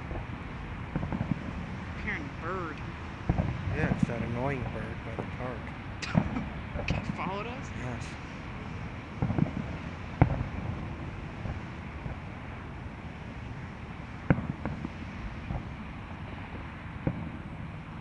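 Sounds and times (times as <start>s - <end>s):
distant fireworks bangs: 0.0s - 18.0s
outdoor rumble: 0.0s - 18.0s.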